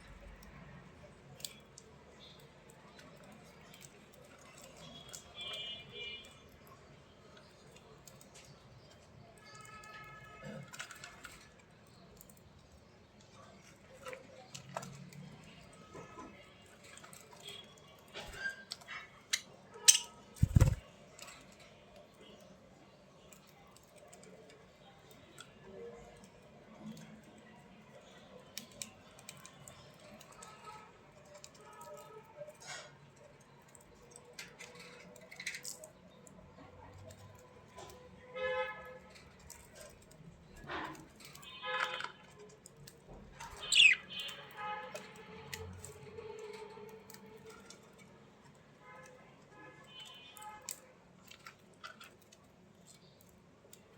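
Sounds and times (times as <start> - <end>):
bird chirp: 43.4 - 44.4.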